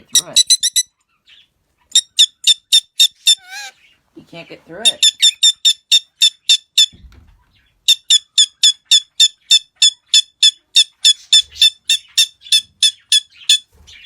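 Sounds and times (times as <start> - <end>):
parrot squawking: 0.0 - 4.0, 4.8 - 6.9.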